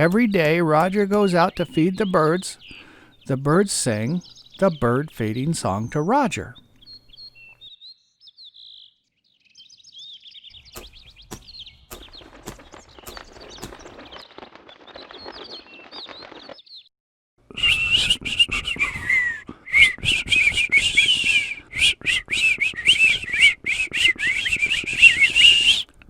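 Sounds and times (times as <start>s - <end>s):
birds whistling a tune: 0.0s - 14.2s, 17.5s - 25.9s
birds chirping softly: 0.0s - 16.9s.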